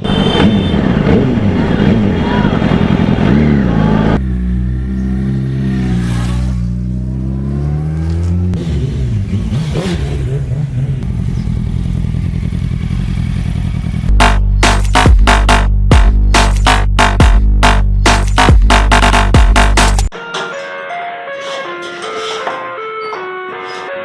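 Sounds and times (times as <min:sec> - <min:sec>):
motorcycle engine revving: 0:00.0 - 0:14.4
electronic music with heavy beat: 0:14.1 - 0:20.5.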